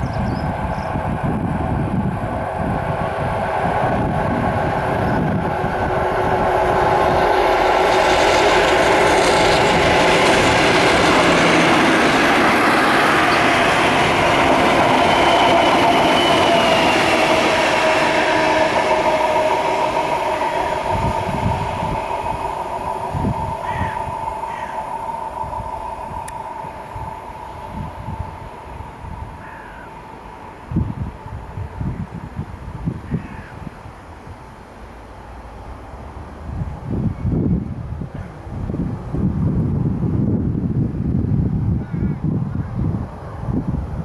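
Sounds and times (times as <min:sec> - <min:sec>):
diesel locomotive passing: 0:00.0 - 0:44.0.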